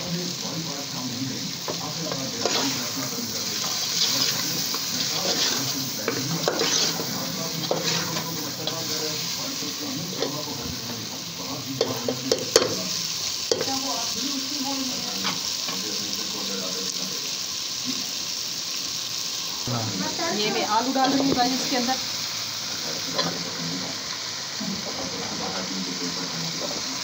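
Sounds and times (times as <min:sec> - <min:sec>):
chicken sizzling in oil: 0:00.0 - 0:27.0
metal ladle scraping pot: 0:05.1 - 0:08.2.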